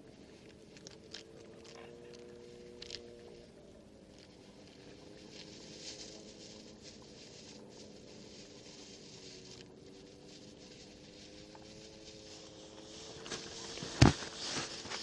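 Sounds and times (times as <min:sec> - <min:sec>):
distant motor hum: 0:00.0 - 0:15.0
scratchy rustling: 0:04.1 - 0:15.0.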